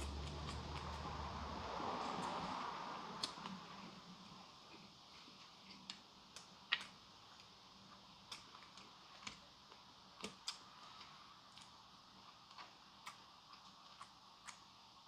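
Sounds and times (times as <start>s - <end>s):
faint small clicks and ticks: 4.7s - 14.8s.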